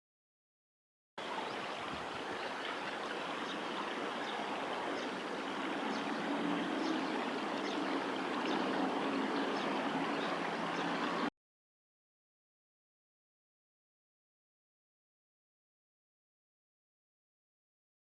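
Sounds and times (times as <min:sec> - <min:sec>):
flowing river water: 0:01.2 - 0:11.3.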